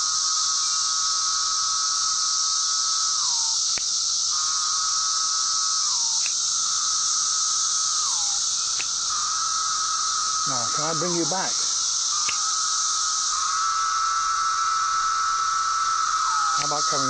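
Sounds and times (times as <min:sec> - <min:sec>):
chorus of cicadas hissing: 0:00.0 - 0:17.0
cicada buzzing call: 0:00.0 - 0:17.0.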